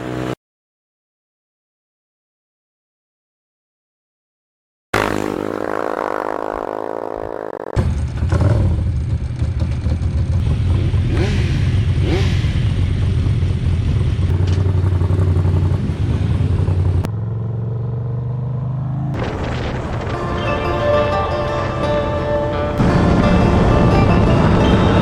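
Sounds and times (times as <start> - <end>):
motorcycle engine running: 0.0 - 0.4, 5.0 - 25.0
rushing noise: 19.2 - 25.0
music: 19.9 - 25.0.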